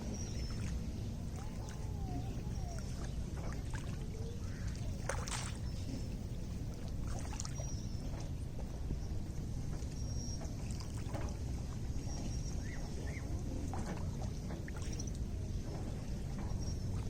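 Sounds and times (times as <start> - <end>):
waves lapping at shore: 0.0 - 8.9.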